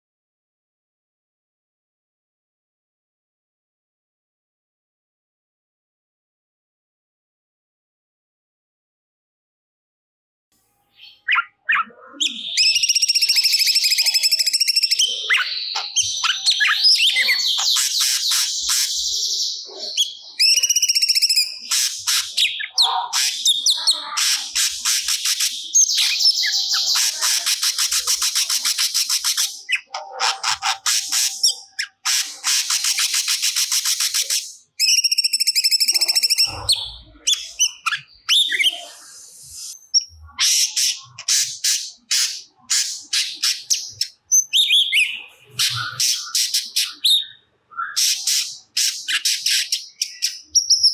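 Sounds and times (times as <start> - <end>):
bird singing chirps and trills: 10.8 - 50.9.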